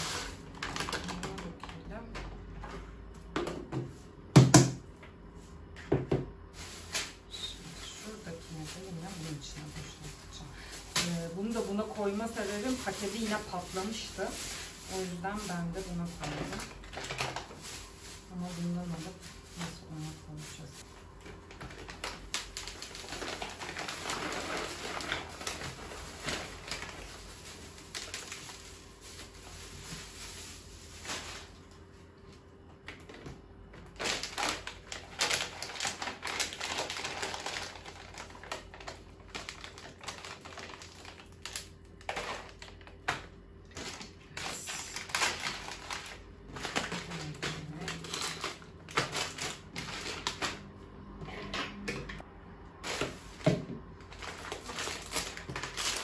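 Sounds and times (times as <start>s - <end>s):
packet rustling: 0.0s - 2.6s, 6.6s - 19.9s, 20.5s - 31.9s, 32.9s - 50.7s, 52.8s - 56.0s
dry grains pattering on plastic: 6.6s - 32.0s.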